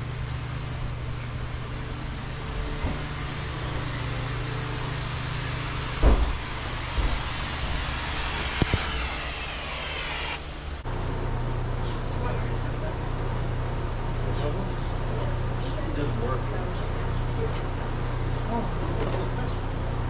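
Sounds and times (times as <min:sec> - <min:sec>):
machine drone with low hum: 0:00.0 - 0:20.0
loud thump: 0:05.0 - 0:10.5.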